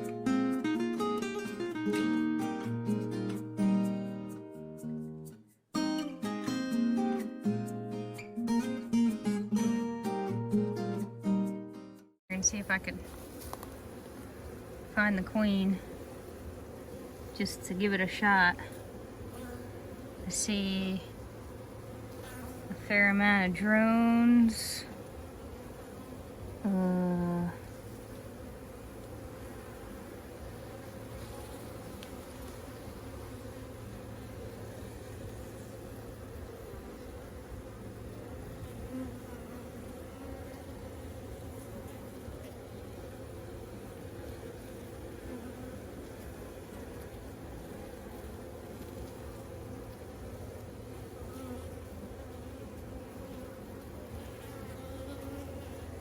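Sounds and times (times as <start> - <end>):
honeybees buzzing: 0.0 - 5.0, 12.3 - 56.0
faint click: 32.0 - 32.2.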